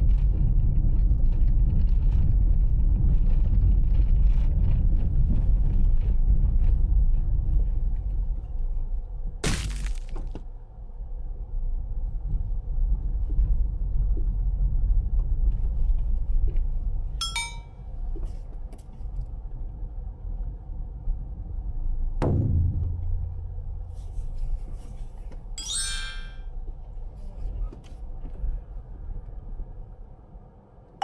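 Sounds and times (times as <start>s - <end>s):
knock: 22.2s - 24.2s
steady low rumble: 22.2s - 25.6s
short ringing tone: 25.6s - 26.4s.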